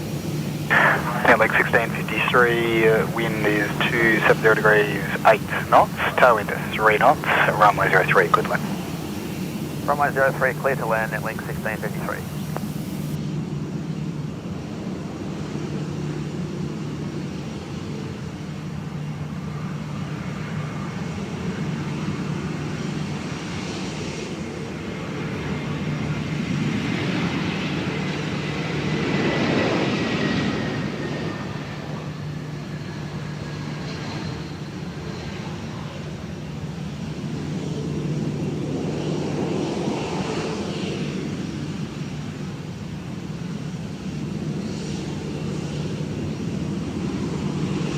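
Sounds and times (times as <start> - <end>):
jet airliner passing: 0.0 - 13.2.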